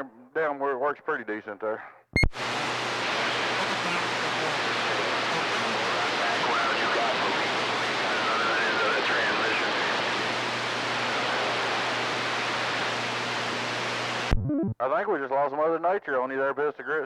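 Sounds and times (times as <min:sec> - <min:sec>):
weak garbled radio voice: 0:01.8 - 0:10.2
radio static hiss: 0:02.2 - 0:14.8.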